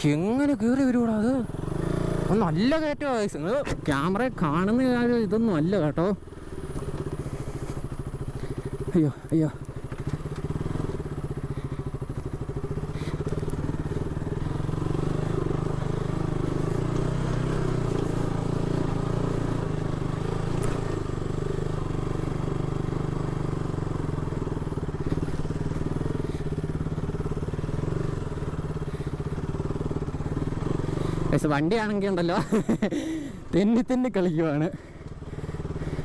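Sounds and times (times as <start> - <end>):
motorcycle engine pulling under load: 9.6 - 36.0.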